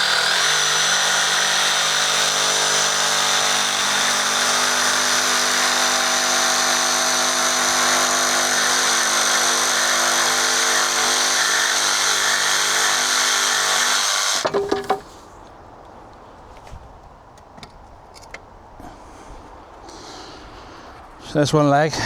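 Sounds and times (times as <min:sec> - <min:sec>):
electric saw cutting wood: 0:00.0 - 0:14.7
wooden knocks: 0:14.4 - 0:15.2.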